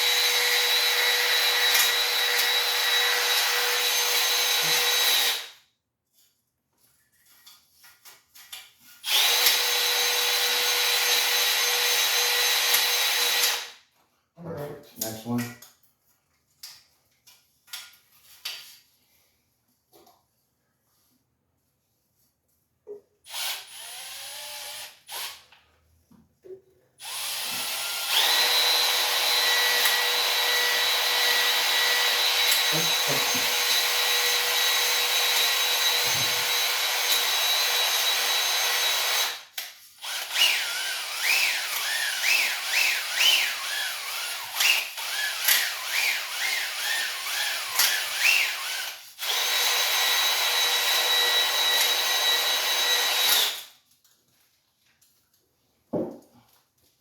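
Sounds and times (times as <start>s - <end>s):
electric drill whining: 0.0s - 5.6s, 9.0s - 13.8s, 23.3s - 25.4s, 27.0s - 53.8s.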